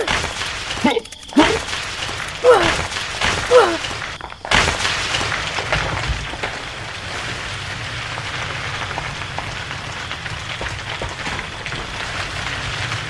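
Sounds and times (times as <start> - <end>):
wheels scraping through sand: 5.0 - 13.0.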